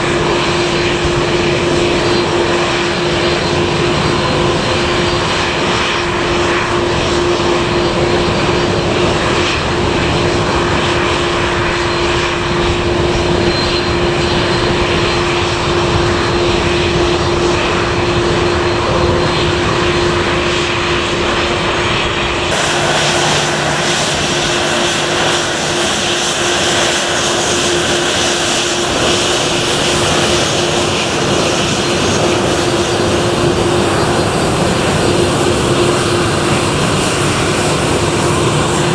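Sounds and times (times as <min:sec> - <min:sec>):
aircraft engines running: 0:00.0 - 0:38.9
constant hum: 0:21.9 - 0:38.9.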